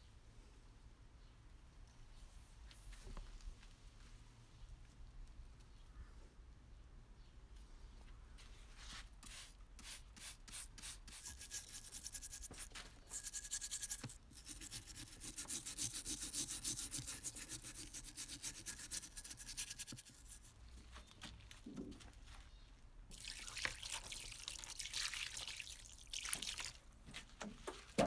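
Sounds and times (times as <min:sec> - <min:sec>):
brush scrubbing a part: 0:09.2 - 0:20.6.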